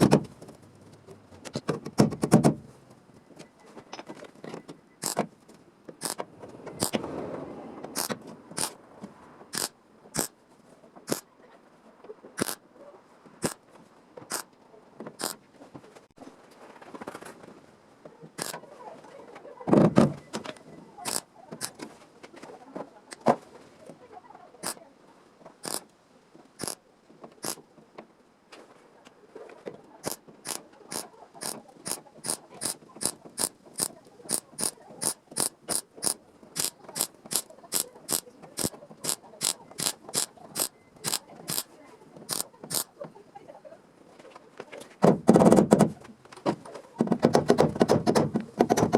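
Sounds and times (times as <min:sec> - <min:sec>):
hand tool clicking: 0:05.0 - 0:05.2, 0:06.0 - 0:06.2, 0:06.8 - 0:07.0, 0:08.0 - 0:08.8, 0:09.6 - 0:10.3, 0:12.4 - 0:12.6, 0:18.4 - 0:18.6, 0:21.1 - 0:21.8, 0:25.6 - 0:25.8, 0:30.0 - 0:41.7, 0:42.3 - 0:42.9.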